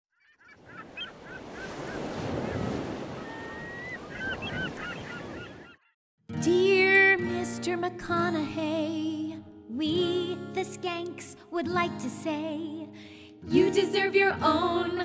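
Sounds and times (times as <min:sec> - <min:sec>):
birds crying: 0:00.2 - 0:06.0.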